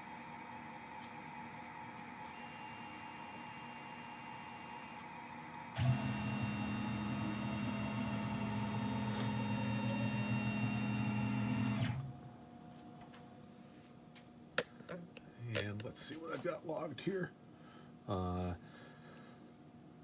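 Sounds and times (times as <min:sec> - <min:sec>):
stepper motor humming: 0:05.8 - 0:12.2.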